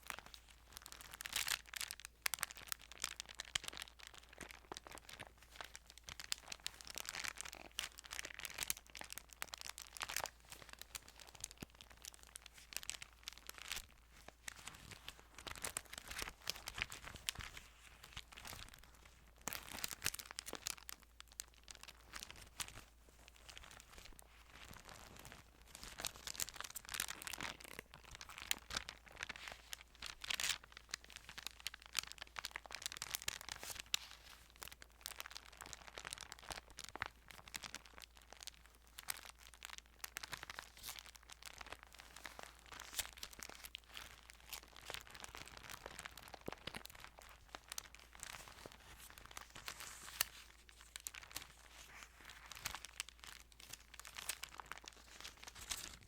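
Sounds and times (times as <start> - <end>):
paper pages rustling: 46.5 - 56.0.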